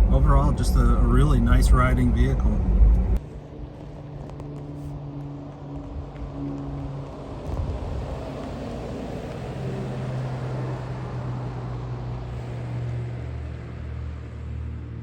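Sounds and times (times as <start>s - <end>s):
car engine drone: 0.0s - 15.0s
tyre road noise: 0.0s - 15.0s.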